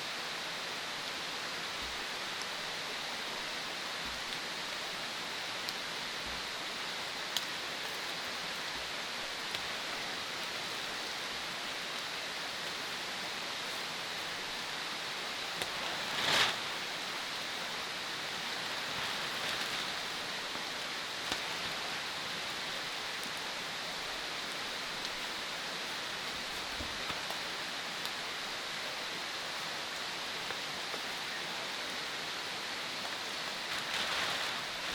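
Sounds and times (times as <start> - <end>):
water rushing: 0.2 - 29.8, 32.2 - 34.9
faint ticks: 7.3 - 8.0.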